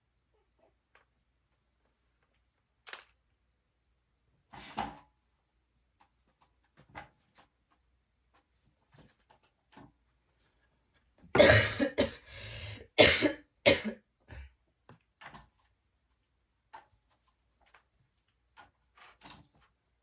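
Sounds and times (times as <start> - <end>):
person coughing: 11.4 - 14.4.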